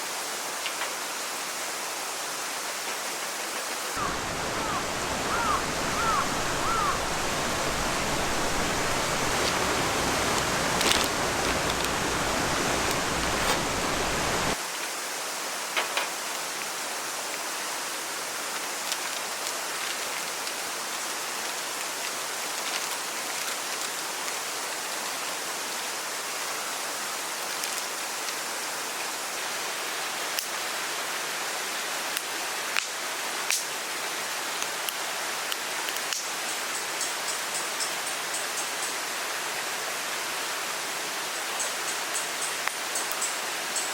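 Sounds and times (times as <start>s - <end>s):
steady hiss: 0.1s - 18.6s
rushing water roar: 3.8s - 14.6s.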